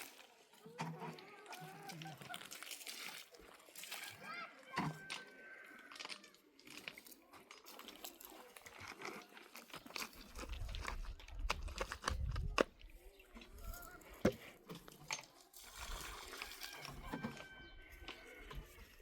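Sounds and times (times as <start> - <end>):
dry hay rustling and crackling: 0.0 - 4.6, 15.3 - 19.0.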